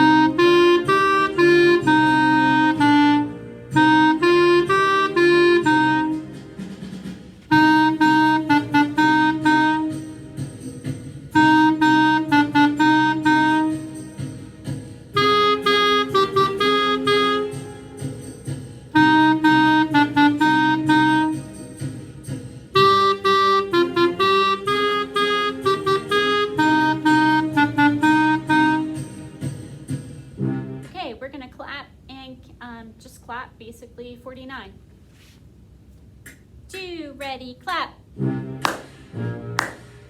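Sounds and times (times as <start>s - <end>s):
clarinet playing bluesy phrase: 0.0s - 6.4s, 7.5s - 10.2s, 11.3s - 14.1s, 15.2s - 18.0s, 18.9s - 21.6s, 22.8s - 29.2s.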